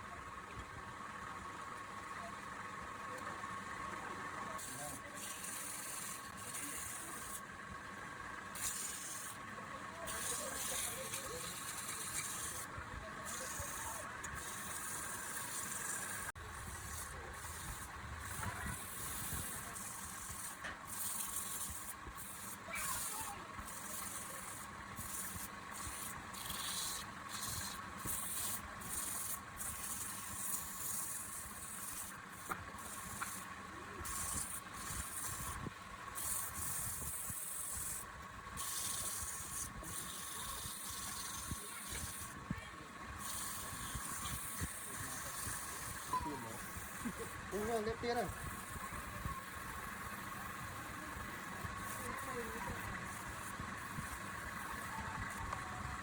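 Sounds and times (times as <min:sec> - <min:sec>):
scraping against spinning wood: 0:04.6 - 0:07.5, 0:08.4 - 0:42.5, 0:43.1 - 0:56.0
wood lathe whining: 0:04.6 - 0:07.5, 0:08.3 - 0:56.0.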